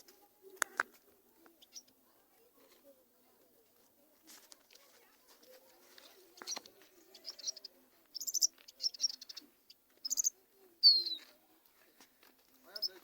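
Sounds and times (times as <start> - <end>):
finches chirping: 1.6 - 1.9, 6.3 - 11.2, 12.7 - 13.0.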